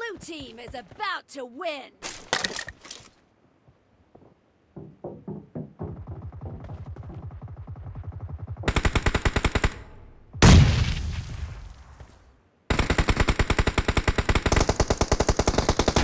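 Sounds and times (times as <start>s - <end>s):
video game automatic gunfire: 6.0s - 10.6s, 12.7s - 16.0s
loud blast: 10.4s - 11.7s.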